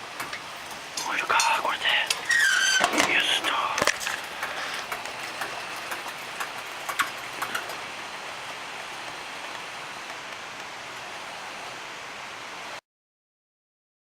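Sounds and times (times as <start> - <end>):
campfire crackling and popping: 0.0 - 11.1.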